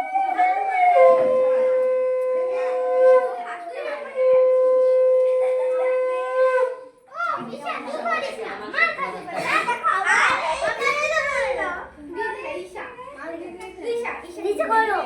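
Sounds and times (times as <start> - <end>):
horn-like wind instrument notes: 0.0 - 3.4, 4.1 - 7.0
children's voices: 0.0 - 15.0.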